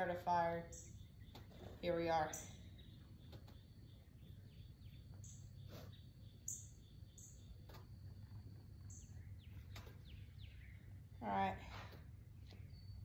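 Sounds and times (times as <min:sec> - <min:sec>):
low steady hum: 0:00.0 - 0:13.0
faint bird chirps: 0:00.7 - 0:11.3.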